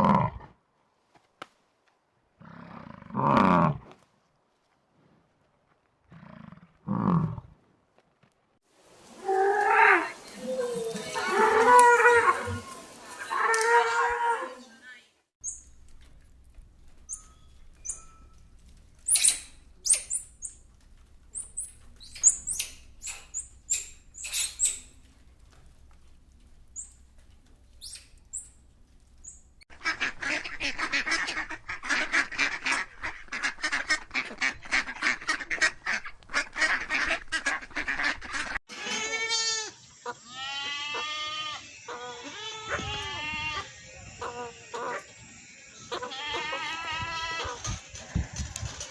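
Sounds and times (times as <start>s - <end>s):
waterfowl calling: 40.0s - 47.8s.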